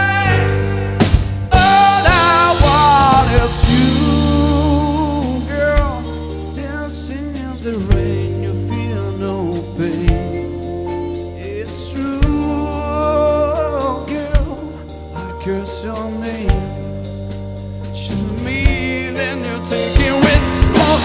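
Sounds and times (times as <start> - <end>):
slow pop song with singing: 0.0 - 21.0
deep kick drum: 7.9 - 8.4.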